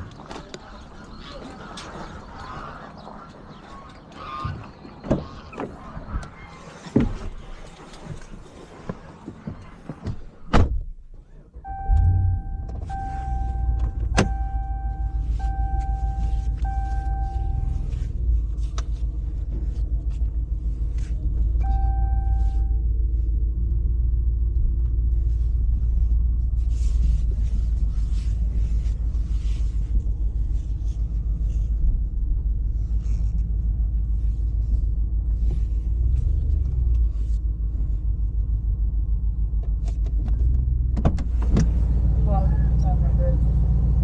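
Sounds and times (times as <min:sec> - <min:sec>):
truck engine rumbling: 0:00.0 - 0:44.0
steady high tone: 0:11.7 - 0:17.7.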